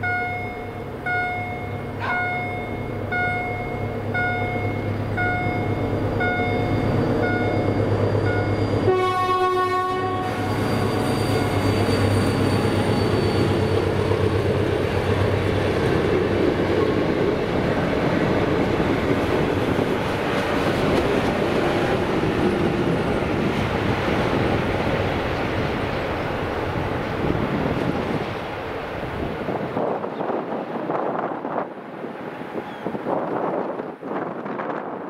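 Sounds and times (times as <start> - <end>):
level crossing warning sounder: 0.0 - 8.9
train wheels on rails: 0.0 - 35.0
locomotive horn: 8.8 - 11.5.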